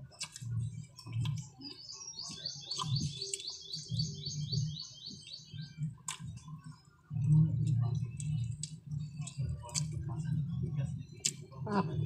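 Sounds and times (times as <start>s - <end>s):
soft chewing sounds: 0.0s - 12.0s
songbird singing chirps: 0.1s - 9.5s.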